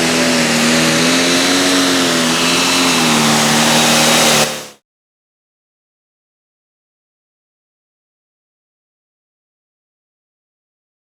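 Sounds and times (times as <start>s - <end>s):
tractor diesel engine at high revs: 0.0s - 4.8s.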